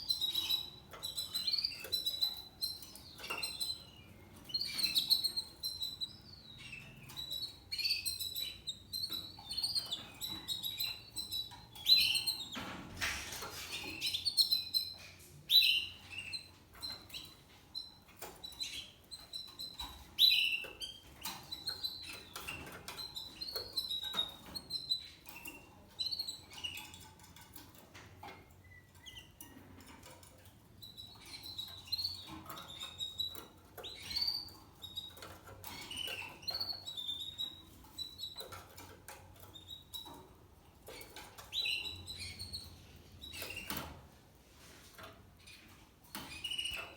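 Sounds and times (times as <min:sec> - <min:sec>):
canary singing: 0:00.0 - 0:12.6, 0:13.5 - 0:44.0, 0:45.0 - 0:46.9
rustling noise: 0:43.8 - 0:45.8.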